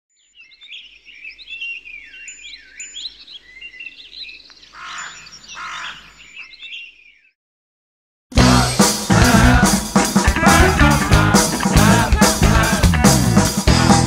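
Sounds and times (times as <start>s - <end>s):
songbirds chirping and whistling: 0.1s - 7.4s.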